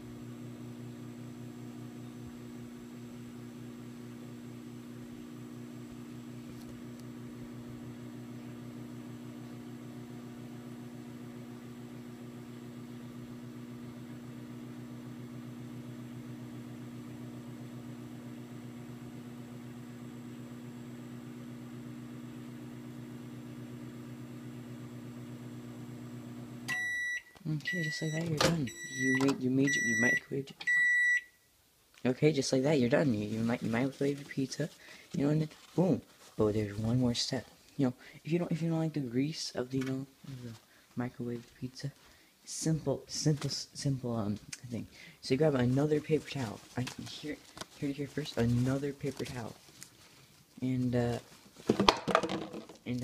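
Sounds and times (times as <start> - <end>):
microwave oven humming: 0.0 - 31.0
microwave finish beep: 26.7 - 31.4.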